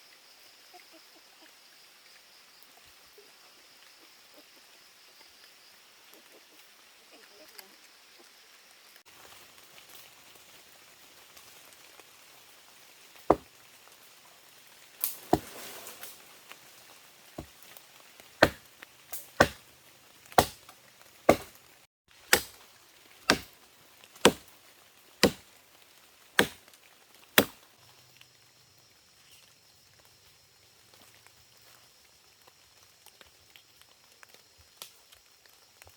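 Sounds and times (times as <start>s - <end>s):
chopping strikes into wood: 15.1s - 15.5s, 18.4s - 19.6s, 20.4s - 20.7s, 21.3s - 21.6s, 22.3s - 22.6s, 23.3s - 23.6s, 24.2s - 24.5s, 25.2s - 25.4s, 26.4s - 26.6s, 27.4s - 27.6s.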